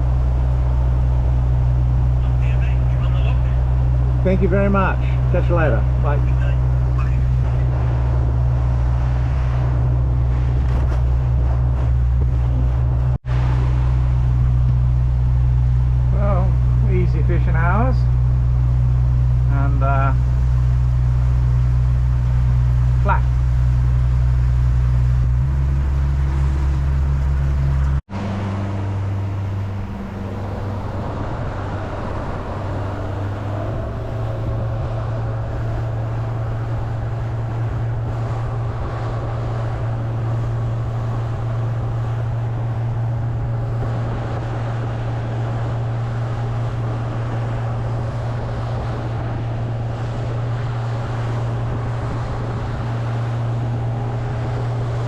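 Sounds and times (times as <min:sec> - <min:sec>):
outboard motor running: 0:00.0 - 0:55.0
water rushing along hull: 0:00.0 - 0:55.0
wind noise: 0:05.0 - 0:55.0.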